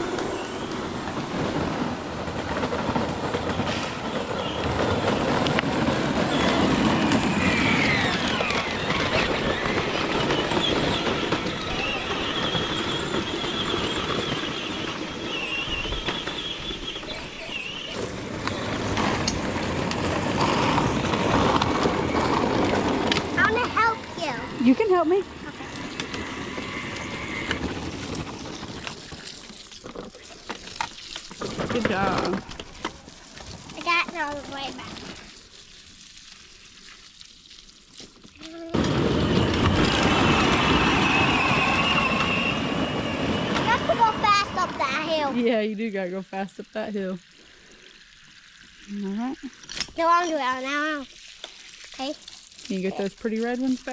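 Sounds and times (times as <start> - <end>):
toy tractor whining: 0.0 - 1.8, 3.7 - 35.2, 38.4 - 45.5
toy tractor rolling noise: 0.0 - 46.2, 46.9 - 53.9.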